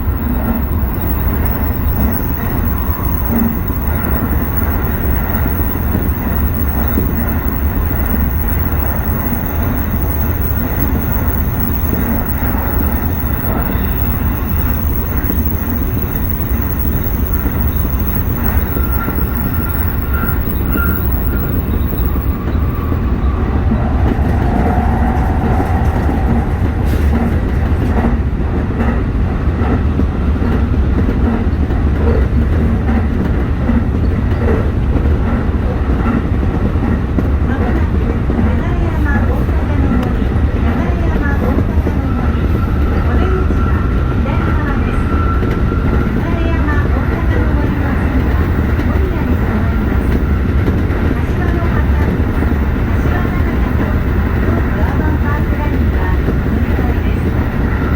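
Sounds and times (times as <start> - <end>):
faint whine: 0.0 - 28.4, 42.1 - 57.9
train wheels rumbling on rail: 0.0 - 57.9.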